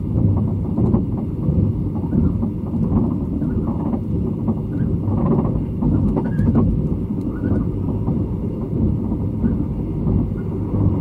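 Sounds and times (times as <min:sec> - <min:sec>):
train wheels rumbling on rail: 0:00.0 - 0:11.0
short squeaks and clicks: 0:05.9 - 0:07.7.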